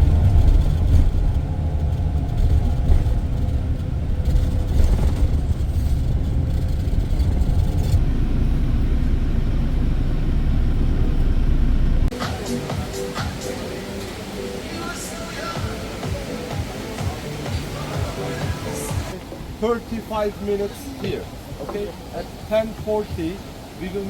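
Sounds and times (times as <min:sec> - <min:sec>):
coach engine and road rumble: 0:00.0 - 0:24.0.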